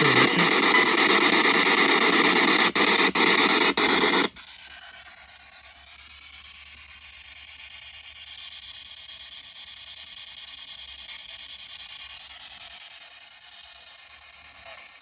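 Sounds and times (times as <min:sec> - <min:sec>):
rush of radio static: 0:00.0 - 0:04.3.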